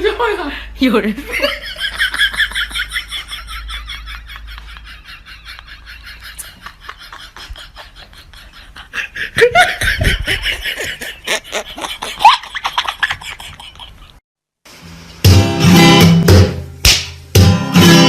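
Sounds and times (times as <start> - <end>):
people laughing: 1.2 - 14.2.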